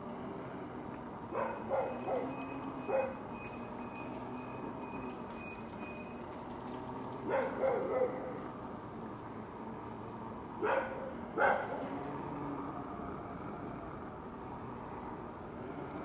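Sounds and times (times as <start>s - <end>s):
dog barking: 1.3s - 3.2s, 7.3s - 8.3s, 10.6s - 11.8s.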